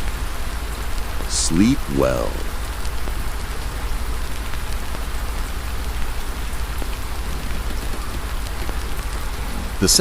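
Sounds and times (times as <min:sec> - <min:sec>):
campfire crackling and popping: 0:01.0 - 0:09.4.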